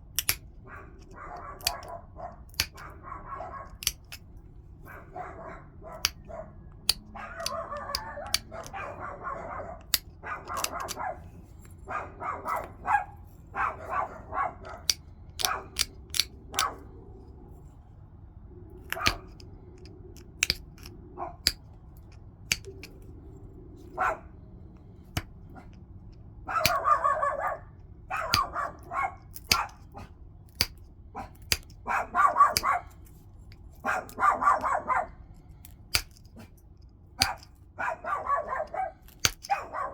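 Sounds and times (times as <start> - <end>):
stone flakes snapping off: 0.2 - 0.5, 2.5 - 2.8, 3.8 - 4.2, 20.2 - 21.6, 29.4 - 29.8, 39.1 - 39.5
gritty scraping on stone: 3.7 - 4.3.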